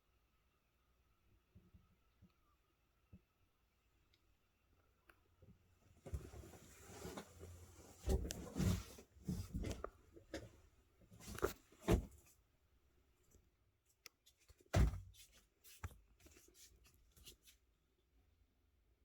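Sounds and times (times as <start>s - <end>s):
rustling handling noises: 6.0s - 12.4s.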